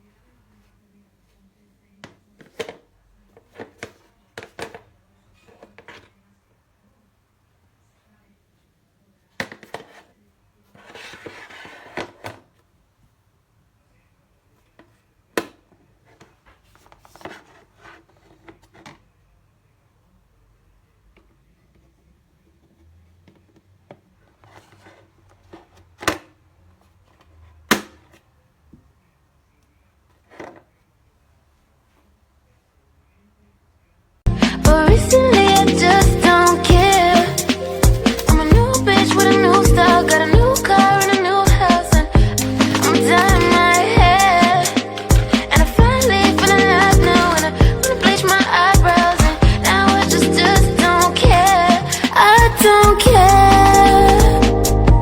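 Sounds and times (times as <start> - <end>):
soft rustle: 14.5 - 19.1, 21.2 - 26.0
plastic containers knocking: 34.3 - 52.6.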